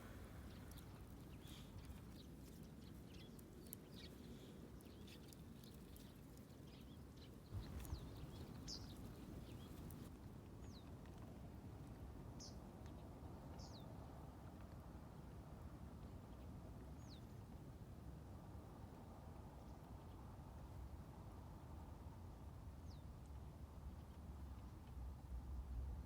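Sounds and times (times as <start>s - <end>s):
bird chirps: 7.6s - 10.0s.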